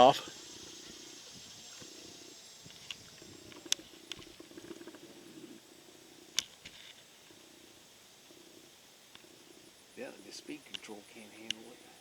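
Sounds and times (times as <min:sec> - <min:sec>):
model plane electric motors buzzing: 0:00.0 - 0:05.7.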